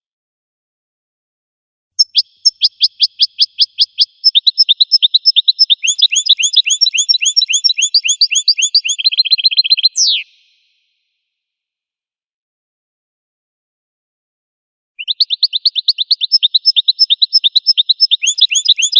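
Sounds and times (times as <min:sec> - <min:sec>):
finch singing: 0:02.0 - 0:10.6, 0:15.0 - 0:18.9.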